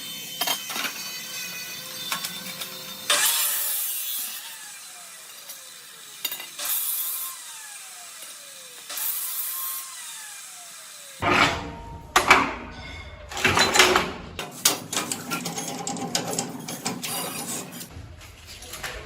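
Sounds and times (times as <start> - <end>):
sharp knocks and clanks: 11.2 - 17.1.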